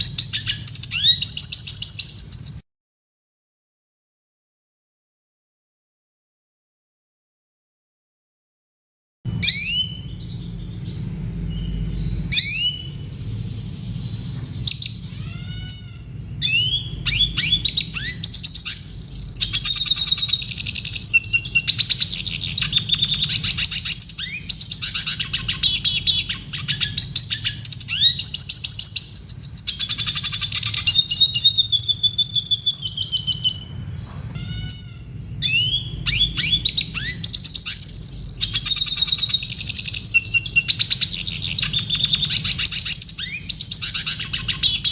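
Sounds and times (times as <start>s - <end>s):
bird chirps and trills: 0.0s - 2.6s, 9.3s - 44.9s
low steady hum: 9.3s - 44.9s.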